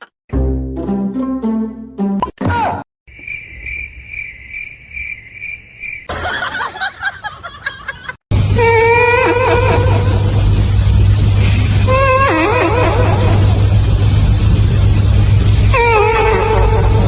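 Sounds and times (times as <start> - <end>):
music: 0.3 - 2.3.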